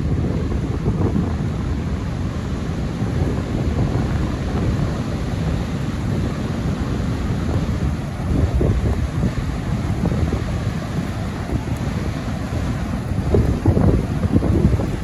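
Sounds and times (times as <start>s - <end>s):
wind buffeting microphone: 0.0s - 15.0s
rain hissing: 3.2s - 15.0s.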